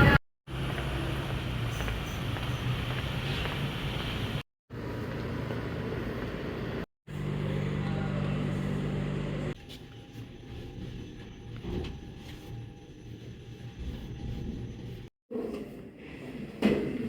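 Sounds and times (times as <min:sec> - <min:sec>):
road noise: 0:00.0 - 0:09.6
vehicle engine hum: 0:00.0 - 0:10.5.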